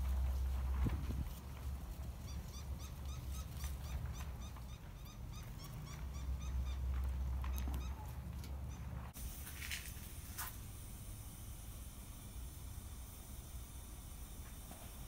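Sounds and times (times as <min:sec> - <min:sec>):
wind rumbling on microphone: 0:00.0 - 0:01.9.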